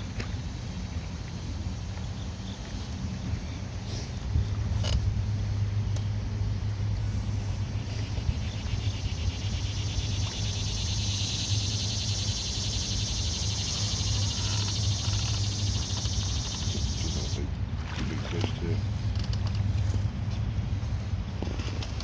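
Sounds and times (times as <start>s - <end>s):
steady low hum: 0.0s - 22.0s
buzzing chorus of animal calls: 8.4s - 17.4s.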